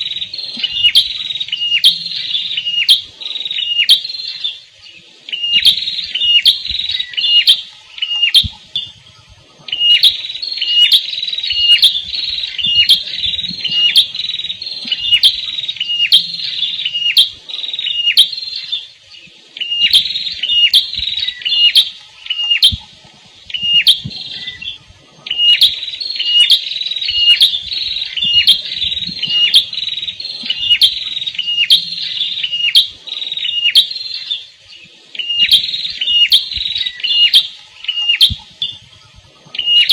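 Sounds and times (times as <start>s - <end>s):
songbird chip notes: 0.0s - 39.9s.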